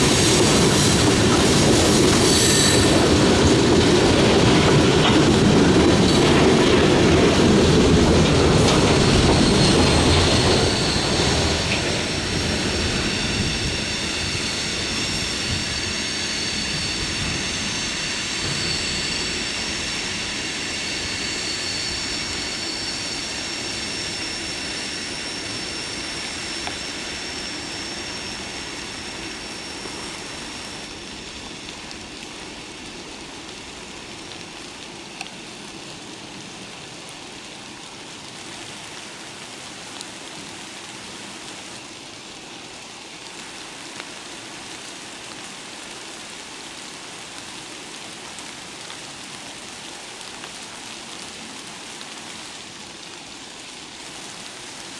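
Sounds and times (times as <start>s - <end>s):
freight train rumbling: 0.0s - 34.6s
steady rain falling: 0.0s - 54.9s
high steady whine: 8.0s - 36.1s.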